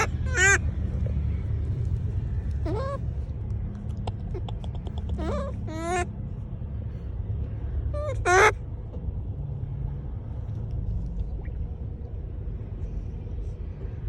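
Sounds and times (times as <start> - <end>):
monkey squealing: 0.0 - 0.6, 2.5 - 3.1, 4.1 - 6.1, 8.0 - 8.6
low rumble: 0.0 - 14.0.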